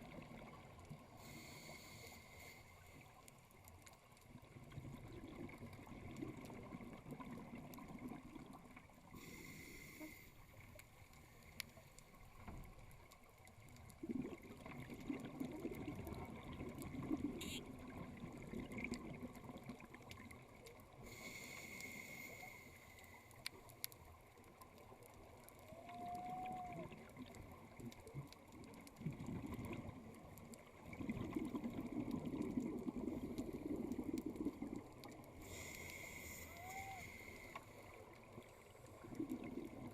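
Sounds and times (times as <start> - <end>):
exhaled air bubbling underwater: 0.0 - 39.9
diver inhaling through regulator: 1.2 - 3.0, 9.2 - 10.4, 21.0 - 23.3, 35.4 - 37.8.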